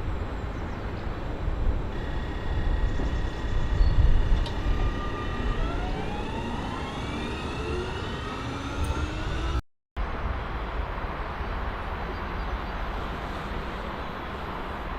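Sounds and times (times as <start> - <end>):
electric train drive whine: 1.8 - 9.6
low rumble: 1.9 - 9.6.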